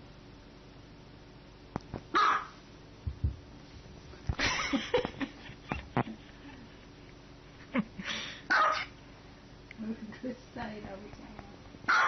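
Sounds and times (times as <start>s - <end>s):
small dog barking: 2.1s - 2.6s, 8.5s - 9.0s.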